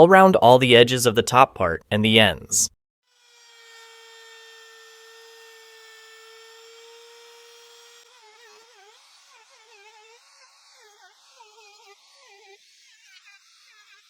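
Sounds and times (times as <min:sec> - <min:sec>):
router whining and cutting wood: 0:03.1 - 0:14.0.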